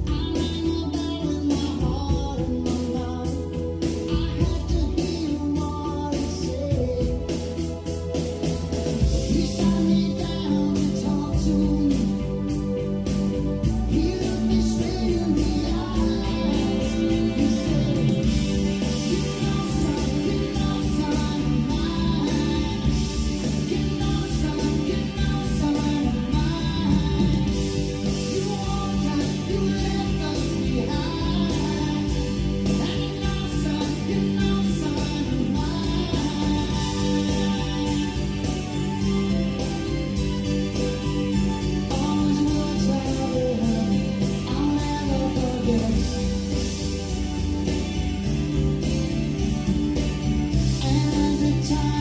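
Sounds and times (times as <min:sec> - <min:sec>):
guitar: 0:00.0 - 0:52.0
person singing: 0:00.0 - 0:52.0
pulsing bass line: 0:00.0 - 0:52.0
song playing through speakers: 0:00.0 - 0:52.0.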